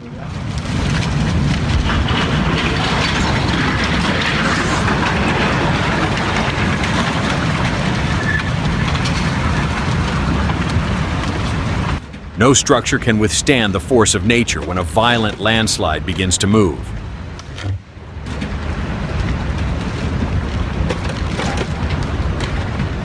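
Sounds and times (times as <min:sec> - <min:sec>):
landslide rushing rumble: 0:12.4 - 0:17.0.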